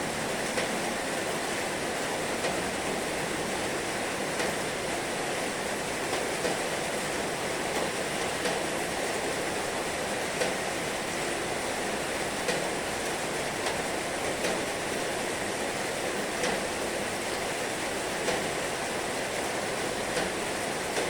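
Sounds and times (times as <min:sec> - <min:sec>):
heavy rain falling: 0:00.0 - 0:21.0
raindrop taps: 0:02.4 - 0:02.6, 0:04.4 - 0:04.6, 0:06.1 - 0:06.7, 0:07.7 - 0:08.7, 0:10.4 - 0:10.6, 0:12.4 - 0:13.8, 0:14.4 - 0:14.6, 0:16.4 - 0:16.7, 0:18.2 - 0:18.5, 0:20.1 - 0:21.0.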